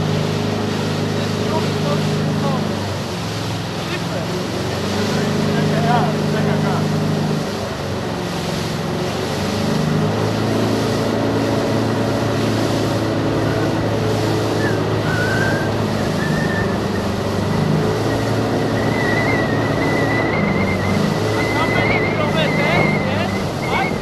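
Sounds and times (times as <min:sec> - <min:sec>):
boat engine drone: 0:00.0 - 0:24.0
rushing water: 0:00.0 - 0:24.0
wind: 0:00.0 - 0:24.0
thin high whine: 0:14.6 - 0:24.0.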